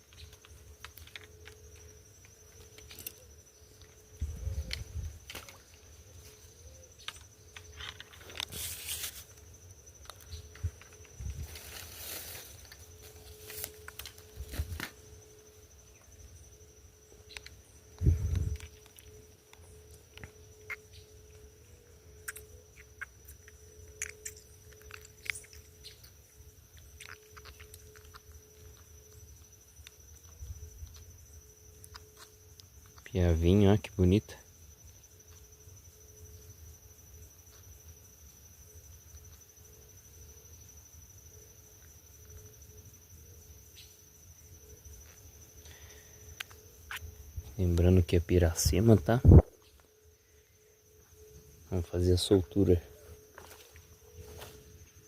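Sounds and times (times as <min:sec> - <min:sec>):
high insect trill: 0:00.0 - 0:55.0.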